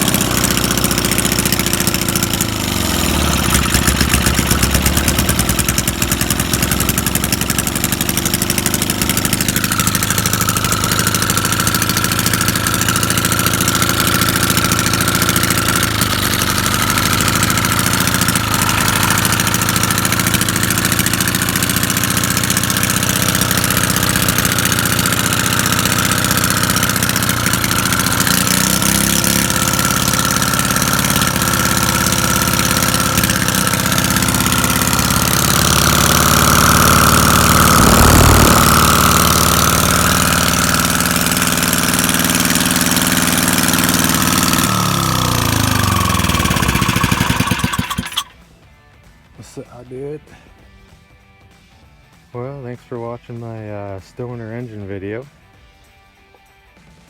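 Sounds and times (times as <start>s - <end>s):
pressure washer engine running: 0.0s - 48.4s
thin high whine: 35.8s - 40.6s.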